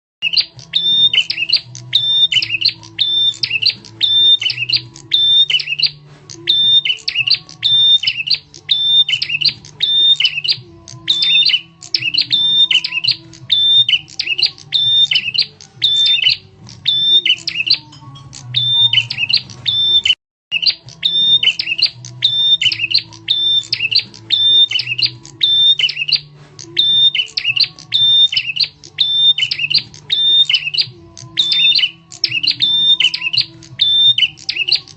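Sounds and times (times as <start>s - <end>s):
sharp chirping bird call: 0.2s - 34.9s.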